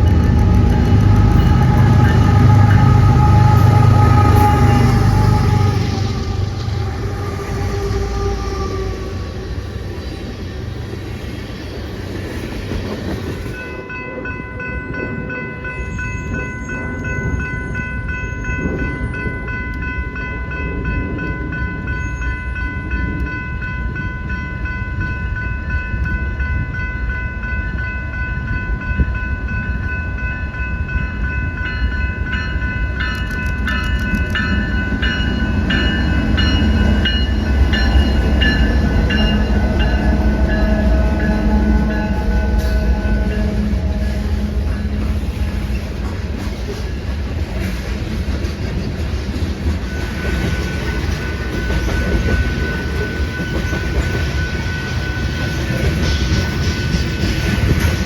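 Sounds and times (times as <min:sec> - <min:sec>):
train rumbling: 0:00.0 - 0:58.0
steady high tones: 0:31.1 - 0:47.1.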